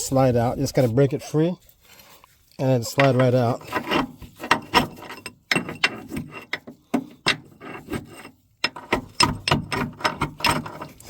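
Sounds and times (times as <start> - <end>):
metallic knocks and clanks: 3.0 - 11.0.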